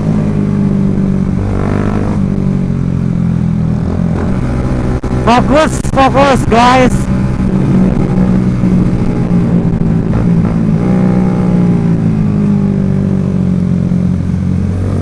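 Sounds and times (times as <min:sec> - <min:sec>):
motorcycle engine running: 0:00.0 - 0:15.0
wind rumble on microphone: 0:07.1 - 0:15.0.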